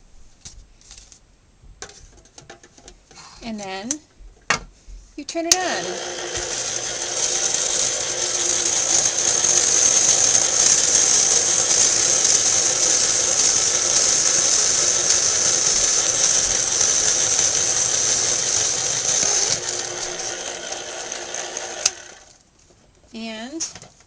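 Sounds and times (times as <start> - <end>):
electric cutter motor running: 5.5 - 22.4.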